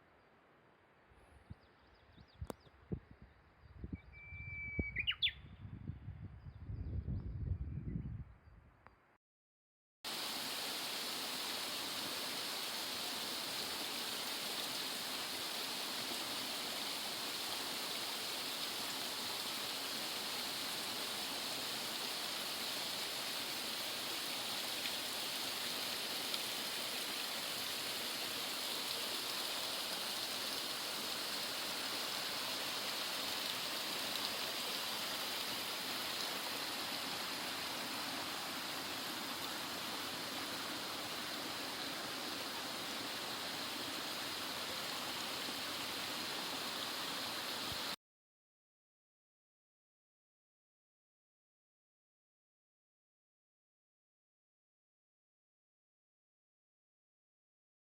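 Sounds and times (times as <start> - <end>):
rushing water: 10.1 - 48.0.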